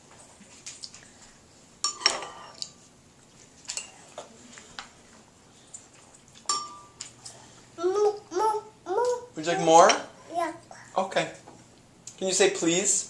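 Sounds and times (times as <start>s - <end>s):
spoon clinking against bowl: 6.4s - 7.0s.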